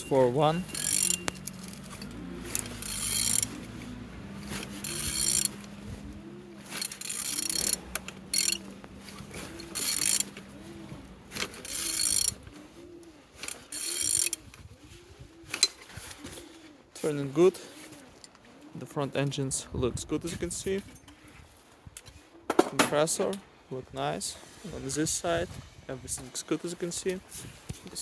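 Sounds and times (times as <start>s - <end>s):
ratchet wrench clicking: 0.7s - 3.6s, 4.8s - 5.6s, 6.7s - 8.6s, 9.6s - 10.3s, 11.6s - 12.4s, 13.7s - 14.4s.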